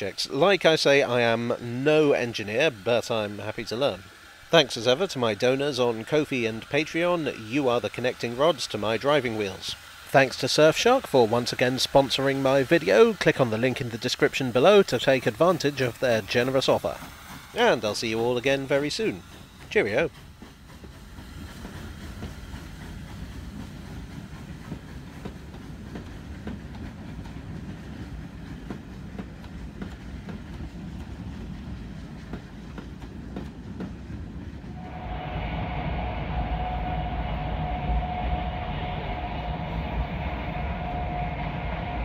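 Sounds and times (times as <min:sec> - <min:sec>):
train rumble from inside: 0:00.0 - 0:42.0
steady whine: 0:34.7 - 0:42.0.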